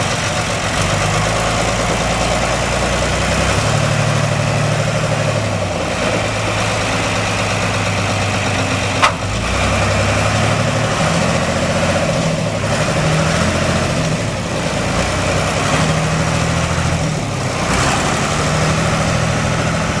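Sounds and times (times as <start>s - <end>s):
diesel engine idling: 0.0s - 20.0s
sharp click: 9.0s - 9.3s.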